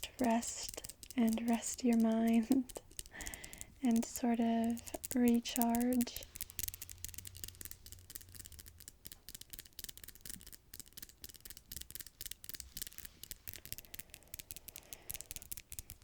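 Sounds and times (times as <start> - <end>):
fingernails tapping and clicking: 0.0 - 16.0.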